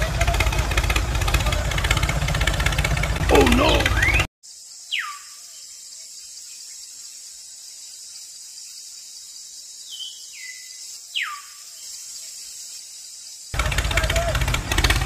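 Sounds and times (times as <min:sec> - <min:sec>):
bird whistles and calls: 0:03.8 - 0:04.3, 0:04.9 - 0:05.5, 0:09.9 - 0:12.4
high insect drone: 0:04.4 - 0:13.6.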